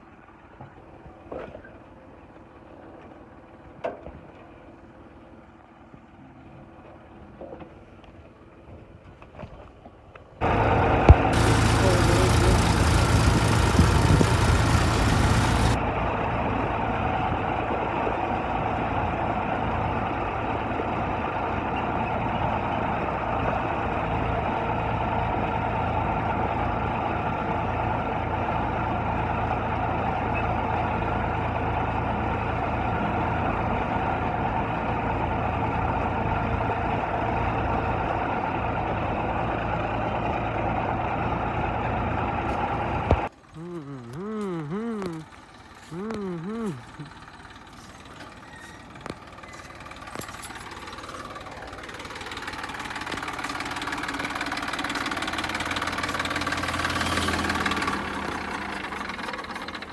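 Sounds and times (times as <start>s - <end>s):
tractor diesel engine running: 10.4s - 15.8s, 42.2s - 59.9s.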